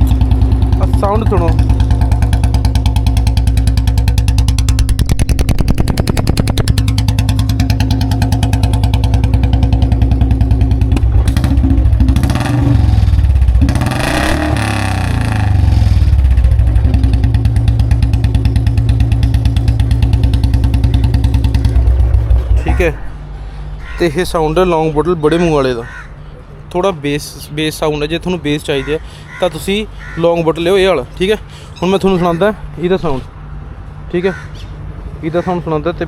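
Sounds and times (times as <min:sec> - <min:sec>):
motorcycle engine idling and revving: 0:00.0 - 0:23.4.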